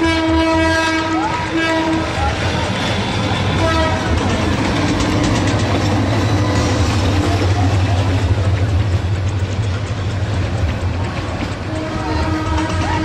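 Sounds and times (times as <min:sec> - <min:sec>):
carriages rattling on track: 0:00.0 - 0:13.0
train rumbling past: 0:00.0 - 0:13.0.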